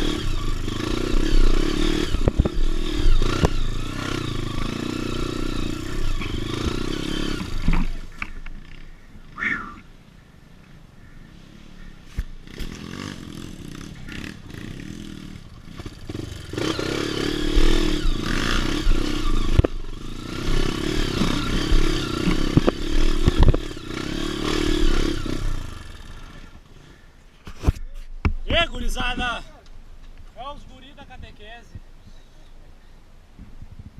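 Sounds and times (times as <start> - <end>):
motorcycle engine revving: 0.0 - 9.8, 12.2 - 26.6
sharp knocks and clatter: 20.5 - 23.7.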